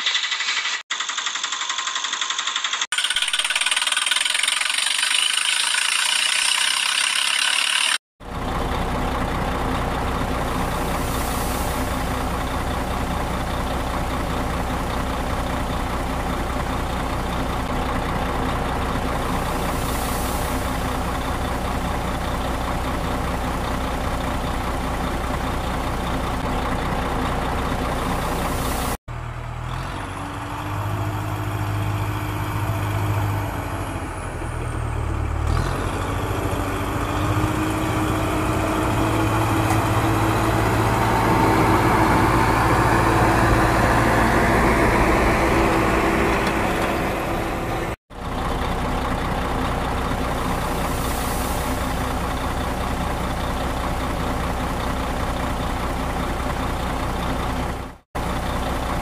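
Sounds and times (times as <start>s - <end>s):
hissy rattling mechanical noise: 0.0s - 8.0s
engine with low hum: 0.0s - 59.0s
truck engine idling: 1.0s - 59.0s.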